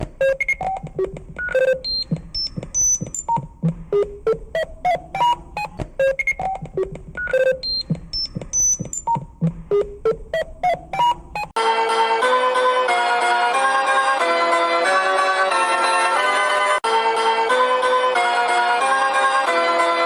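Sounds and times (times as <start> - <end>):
short electronic beeps: 0.0 - 11.6.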